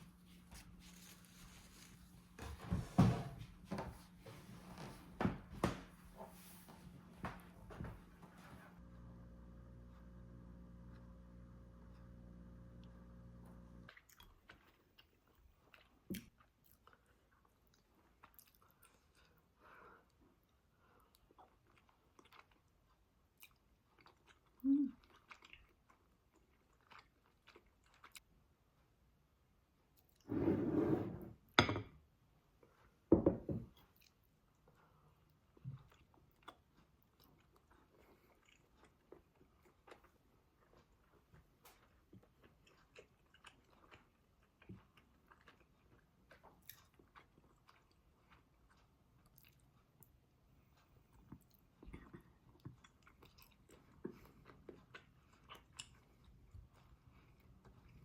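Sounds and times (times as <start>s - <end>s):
low hum: 8.6s - 13.9s
person chewing and crunching: 13.9s - 28.3s, 33.8s - 58.0s.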